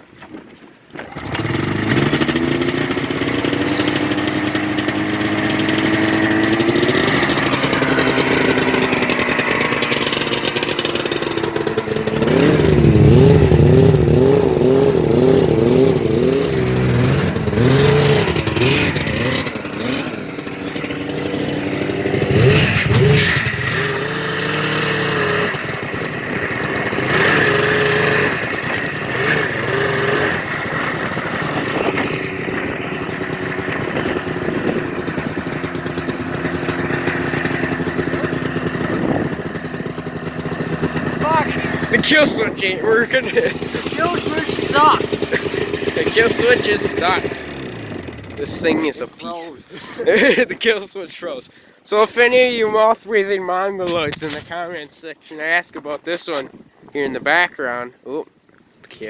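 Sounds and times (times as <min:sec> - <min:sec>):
snowmobile engine revving: 0:01.0 - 0:55.0.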